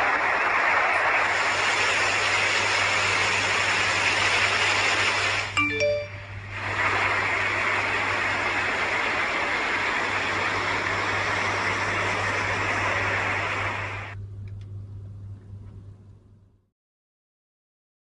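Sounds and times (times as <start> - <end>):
loud steady rushing noise: 0.0 - 14.2
low hum: 0.0 - 16.7.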